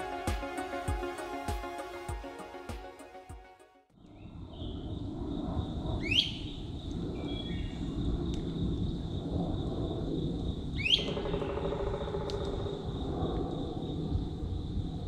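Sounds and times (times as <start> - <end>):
steady high thin tone: 0.0 - 3.7.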